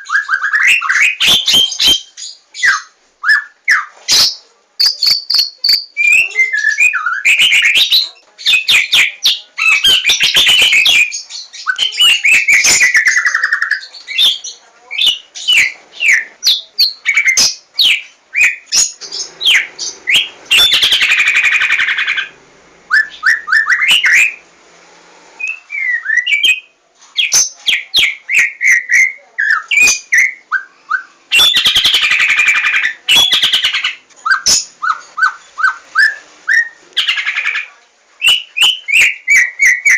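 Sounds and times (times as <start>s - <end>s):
harsh rattling bird phrases: 0.1s - 24.4s, 31.3s - 39.9s
songbird singing varied whistles: 22.9s - 24.4s, 25.4s - 37.3s, 38.2s - 39.9s.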